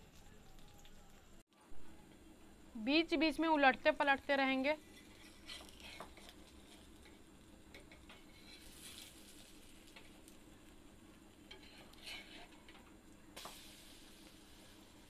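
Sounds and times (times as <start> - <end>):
faint sizzling in oil: 0.0 - 15.0
metal spatula scraping griddle: 4.8 - 7.2, 7.8 - 9.4, 11.5 - 12.8.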